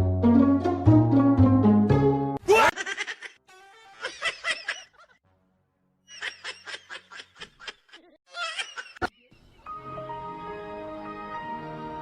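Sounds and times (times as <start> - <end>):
person laughing: 2.4 - 5.2, 6.1 - 9.1.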